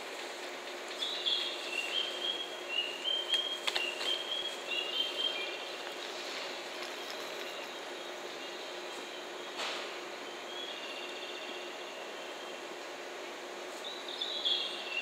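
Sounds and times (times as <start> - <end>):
train equipment humming: 0.0 - 15.0.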